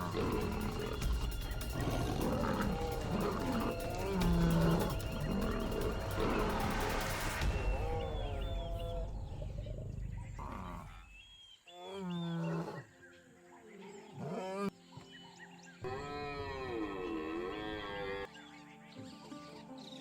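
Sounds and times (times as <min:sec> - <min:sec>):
background music: 0:00.0 - 0:11.3
lions growling and roaring: 0:00.0 - 0:11.3.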